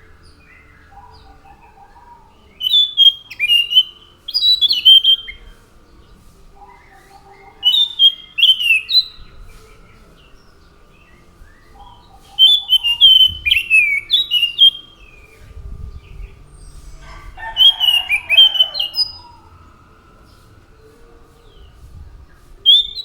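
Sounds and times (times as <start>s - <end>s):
thrush whistled song: 2.6s - 5.4s, 7.6s - 9.3s, 11.4s - 21.7s, 22.6s - 23.0s.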